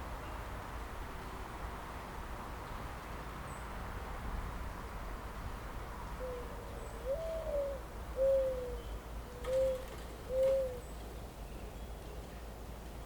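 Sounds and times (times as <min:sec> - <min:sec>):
bird hooting: 0:06.2 - 0:10.8.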